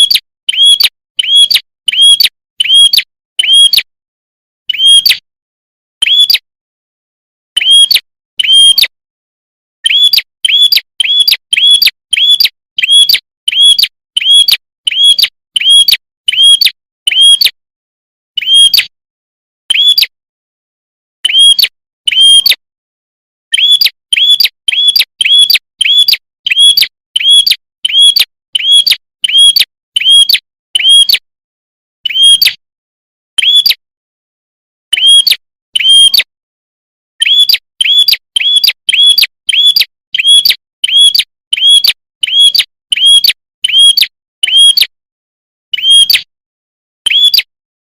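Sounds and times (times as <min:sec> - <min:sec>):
sharp bird chirps: 0:00.0 - 0:03.9, 0:04.7 - 0:05.2, 0:06.0 - 0:06.5, 0:07.5 - 0:09.0, 0:09.8 - 0:17.6, 0:18.4 - 0:18.9, 0:19.7 - 0:20.2, 0:21.2 - 0:22.6, 0:23.5 - 0:31.2, 0:32.0 - 0:32.6, 0:33.4 - 0:33.8, 0:34.9 - 0:36.3, 0:37.2 - 0:44.9, 0:45.7 - 0:46.3, 0:47.0 - 0:47.5.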